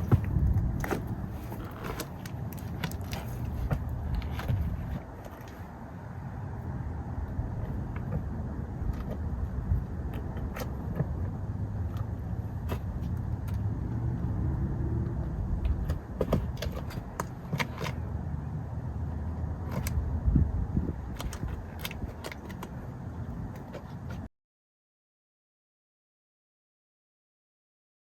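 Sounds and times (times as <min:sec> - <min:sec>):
gear scraping against rock: 0:00.0 - 0:05.8, 0:07.5 - 0:13.7, 0:15.6 - 0:18.2, 0:20.8 - 0:24.3
wind rumble: 0:00.0 - 0:24.2.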